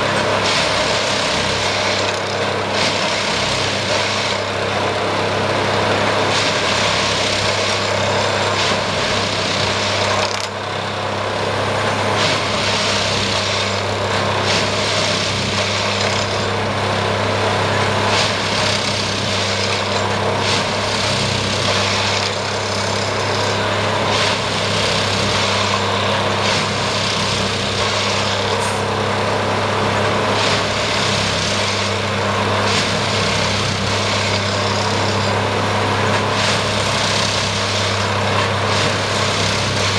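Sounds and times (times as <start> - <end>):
engine humming: 0.0 - 39.9
clatter of vibrating tamping tools: 12.1 - 16.6, 18.0 - 28.8.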